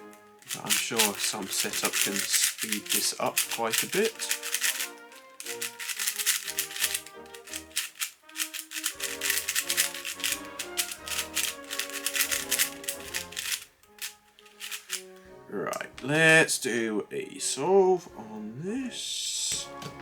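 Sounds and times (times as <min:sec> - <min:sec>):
plastic puzzle cube clicking: 0:00.0 - 0:15.2
background music: 0:00.0 - 0:20.0.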